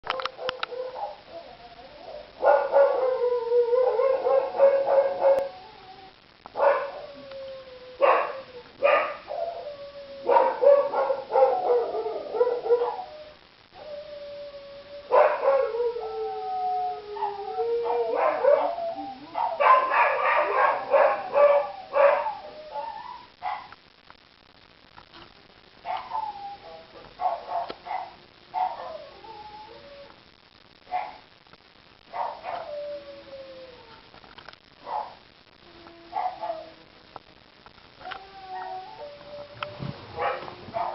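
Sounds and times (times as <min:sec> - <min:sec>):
dogs barking and yipping: 0:00.1 - 0:01.3, 0:02.1 - 0:05.5, 0:06.6 - 0:07.1, 0:08.0 - 0:09.5, 0:10.3 - 0:13.1, 0:15.1 - 0:15.8, 0:17.2 - 0:23.8, 0:25.8 - 0:29.8, 0:32.1 - 0:32.8, 0:34.8 - 0:35.2, 0:36.1 - 0:36.7, 0:39.7 - 0:40.9
dogs howling: 0:00.1 - 0:23.7, 0:25.9 - 0:30.2, 0:32.1 - 0:34.1, 0:34.8 - 0:36.9, 0:38.0 - 0:40.9.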